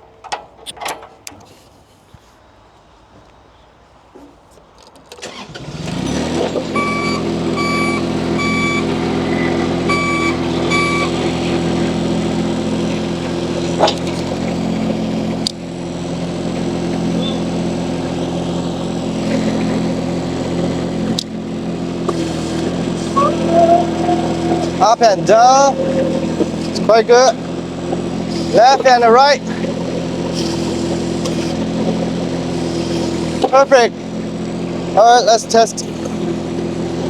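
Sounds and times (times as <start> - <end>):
skid steer engine running: 5.2 - 37.0
short electronic beeps: 6.8 - 8.9, 9.9 - 11.2, 23.1 - 24.7.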